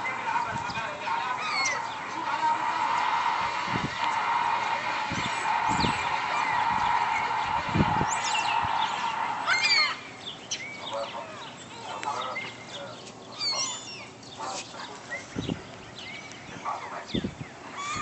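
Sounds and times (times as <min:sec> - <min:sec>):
steady hum: 0:00.0 - 0:17.8
seagulls calling: 0:00.0 - 0:18.0.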